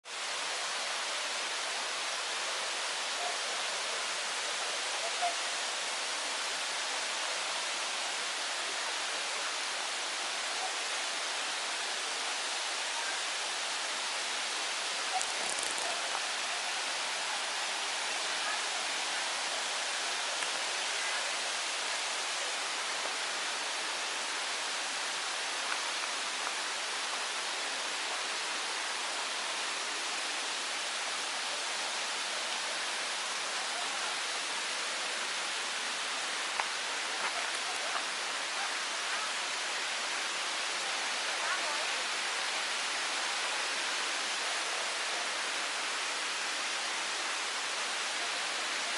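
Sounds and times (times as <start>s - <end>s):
waterfall rushing: 0.1s - 48.9s
faint ticks: 15.2s - 15.9s.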